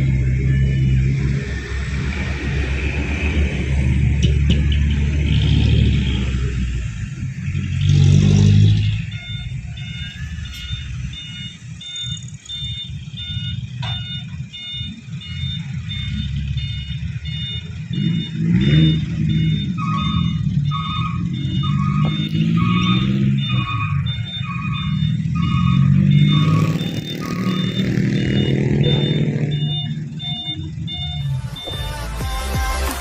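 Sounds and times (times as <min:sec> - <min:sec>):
diesel truck engine under load: 0:00.0 - 0:33.0
short high electronic beeps: 0:08.7 - 0:32.1.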